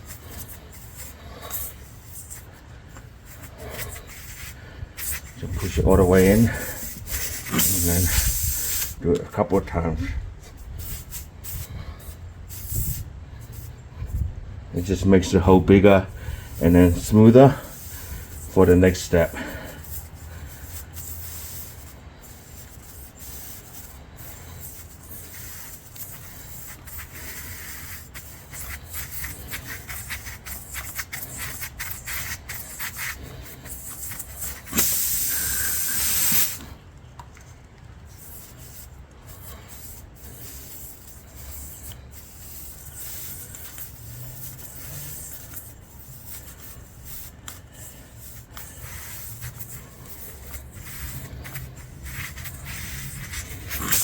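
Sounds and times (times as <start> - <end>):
reamer rasping in tyre: 0.0 - 36.8, 38.1 - 54.0
loud hiss: 6.2 - 9.0, 34.4 - 36.6, 50.1 - 54.0.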